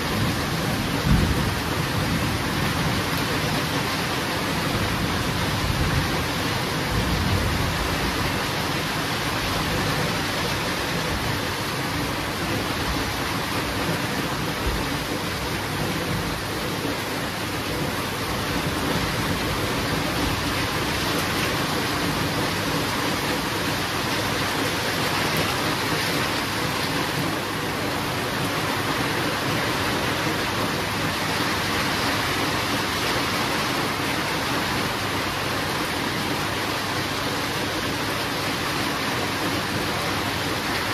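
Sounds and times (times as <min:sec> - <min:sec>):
thunder rumble: 0:00.0 - 0:03.9
heavy rain: 0:00.0 - 0:40.9.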